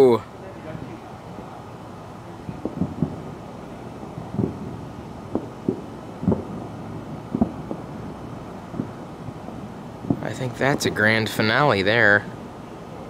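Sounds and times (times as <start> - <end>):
distant fireworks booms and pops: 2.4 - 11.0.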